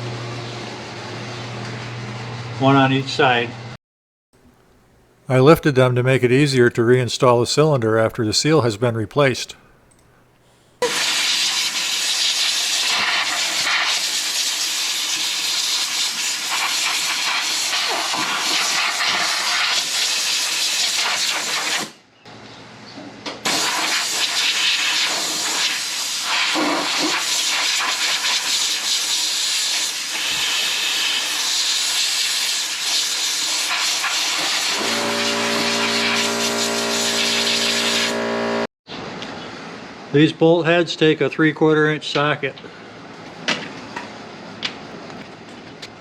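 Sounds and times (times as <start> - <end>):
loud steady hiss: 10.6 - 20.9
humming tone: 34.8 - 38.7.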